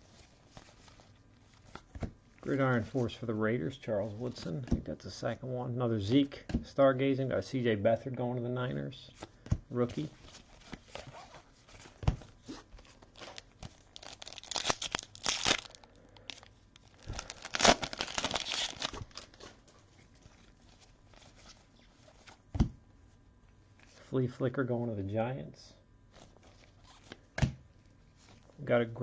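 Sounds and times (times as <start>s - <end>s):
wrapper tearing and crinkling: 12.8s - 19.4s.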